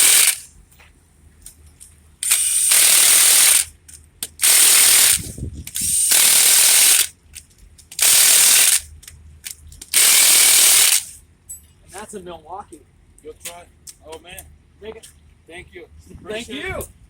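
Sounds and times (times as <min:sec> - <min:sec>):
impact wrench hammering: 0:00.0 - 0:00.4, 0:02.2 - 0:07.1, 0:08.0 - 0:08.8, 0:09.9 - 0:11.1.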